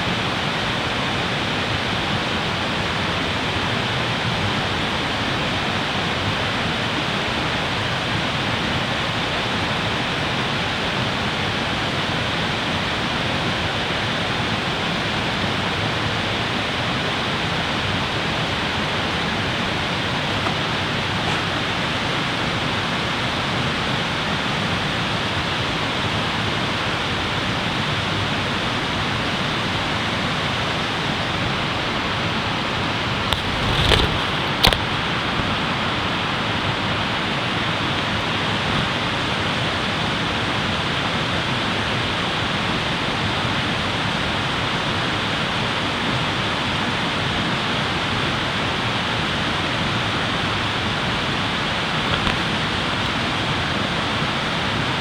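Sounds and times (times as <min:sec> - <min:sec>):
steady rushing noise: 0:31.0 - 0:39.2.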